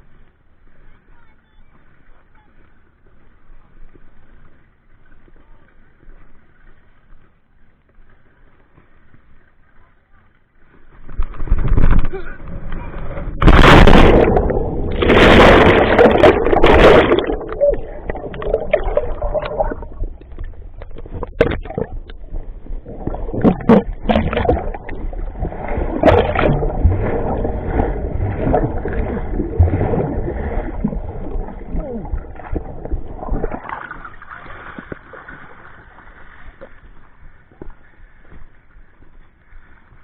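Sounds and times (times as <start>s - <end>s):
water sloshing and gurgling: 10.9s - 40.0s
splashing strokes: 22.9s - 36.6s.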